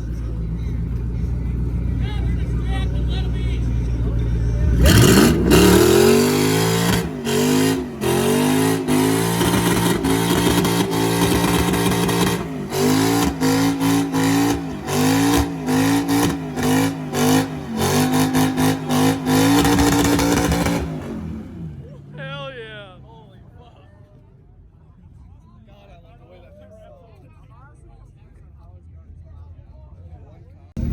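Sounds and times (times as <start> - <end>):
engine revving hard: 4.6 - 21.8.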